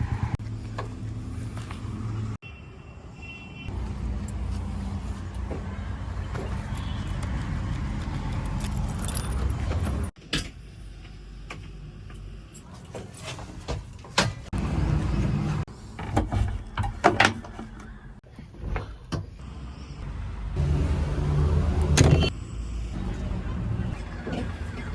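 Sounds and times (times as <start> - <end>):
heavy machinery diesel engines: 14.5 - 24.9.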